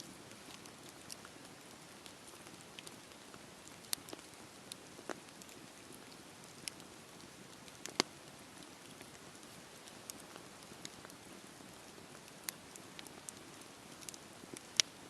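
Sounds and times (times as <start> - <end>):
fire crackling and popping: 0.0 - 15.0
campfire hissing: 0.3 - 15.0.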